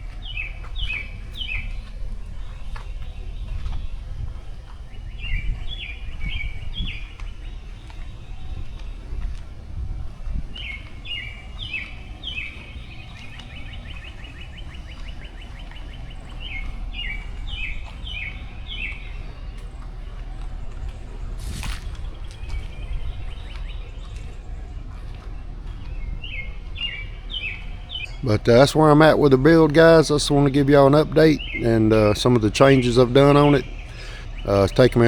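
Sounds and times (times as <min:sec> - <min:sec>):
low rumble: 0:00.0 - 0:30.5
songbird chirping and trilling: 0:00.0 - 0:35.0.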